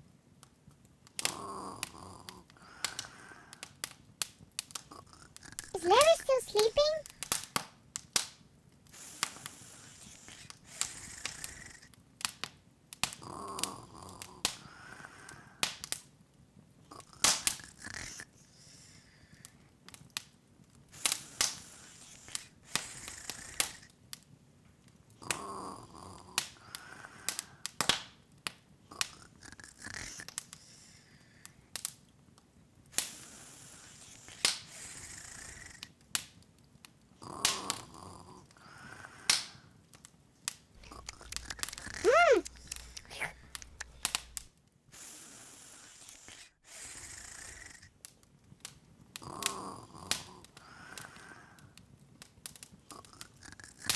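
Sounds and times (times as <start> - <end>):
wood fire crackling and popping: 40.5 - 44.5, 51.8 - 53.9.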